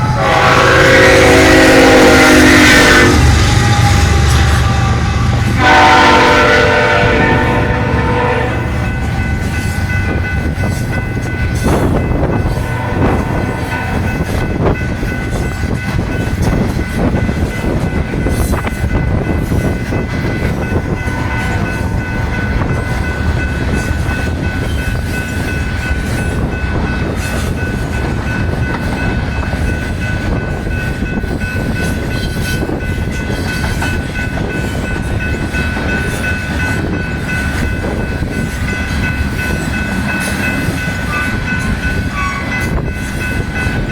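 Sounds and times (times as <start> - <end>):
high-pitched squeal: 0.0 - 6.5
train wheels rumbling on rails: 0.0 - 43.9.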